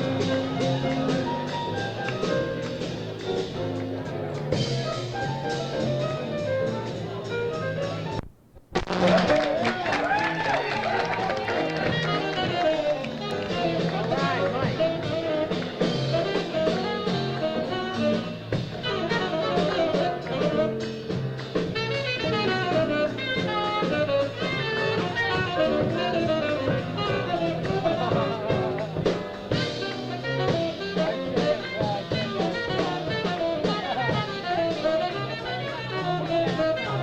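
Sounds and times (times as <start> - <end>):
busy drumming: 0.0 - 37.0
double bass: 0.0 - 37.0
piano: 0.0 - 37.0
tenor saxophone: 11.4 - 37.0.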